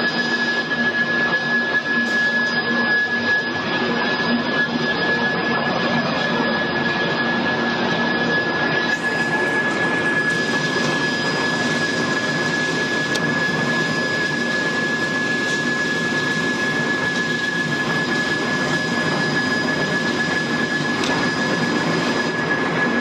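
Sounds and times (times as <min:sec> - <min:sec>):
high-pitched machine whine: 0:00.0 - 0:23.0
production line machinery running: 0:00.0 - 0:23.0.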